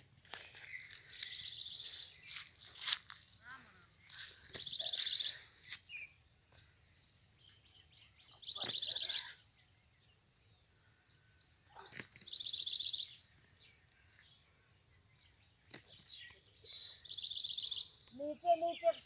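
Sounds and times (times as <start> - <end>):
songbird phrase with trill: 3.3 - 6.1, 7.4 - 10.2, 11.5 - 14.4, 15.0 - 19.0.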